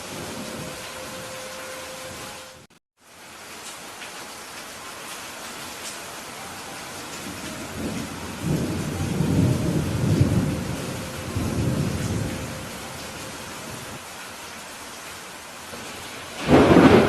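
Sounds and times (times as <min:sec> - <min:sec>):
steady rain hissing: 0:00.0 - 0:17.0
low thunder rumbling: 0:07.2 - 0:14.0, 0:15.8 - 0:17.0.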